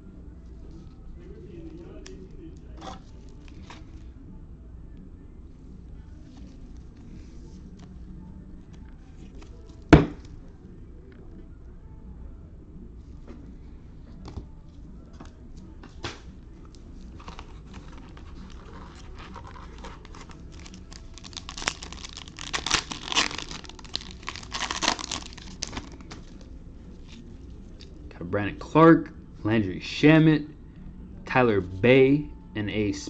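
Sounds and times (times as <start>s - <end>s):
plastic wrapper tearing and crinkling: 17.2s - 26.4s
plastic wrapper clicks: 18.8s - 26.1s.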